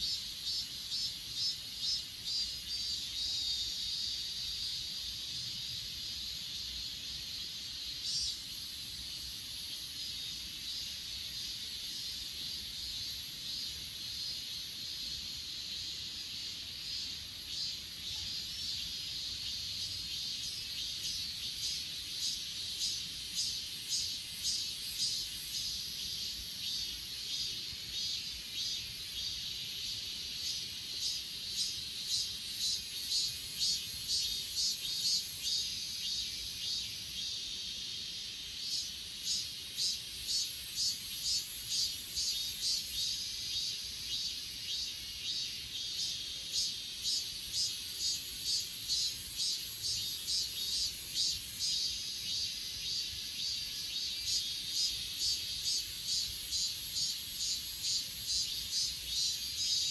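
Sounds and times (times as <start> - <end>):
crickets chirping chorus: 0.0 - 59.9
insect pulsed chirp: 0.0 - 59.9.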